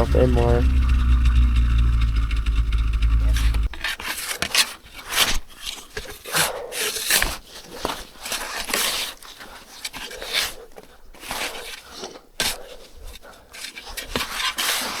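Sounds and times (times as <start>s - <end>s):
snowmobile engine humming: 0.0s - 3.7s.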